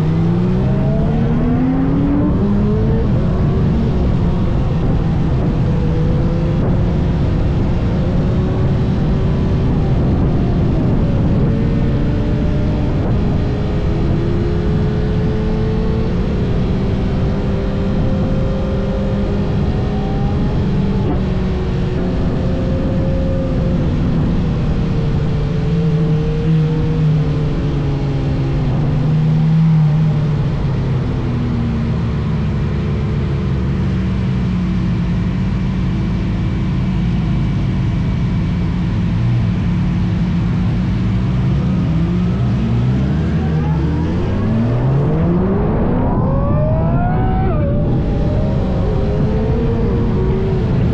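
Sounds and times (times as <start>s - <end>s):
motorcycle engine revving: 0.0s - 50.9s
wind rumble on microphone: 0.0s - 50.9s.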